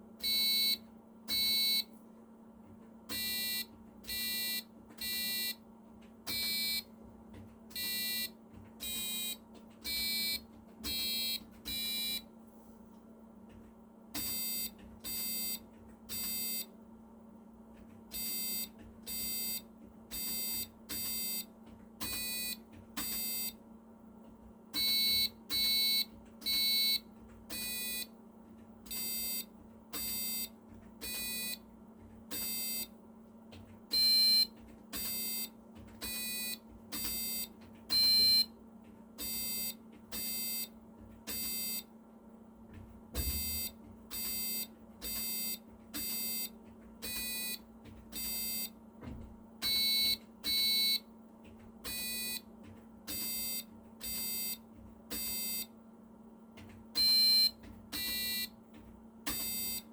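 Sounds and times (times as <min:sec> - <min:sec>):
buzzer-like keyboard melody: 0:00.2 - 0:01.9, 0:03.1 - 0:05.6, 0:07.7 - 0:12.3, 0:39.2 - 0:41.9, 0:43.2 - 0:48.8.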